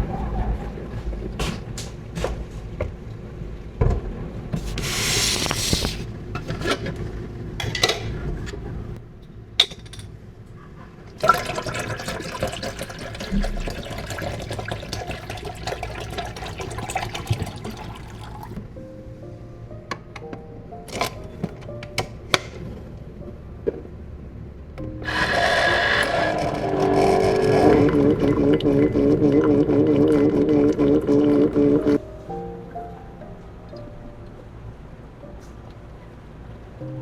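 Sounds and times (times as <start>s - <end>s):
water running and splashing: 11.2s - 18.6s.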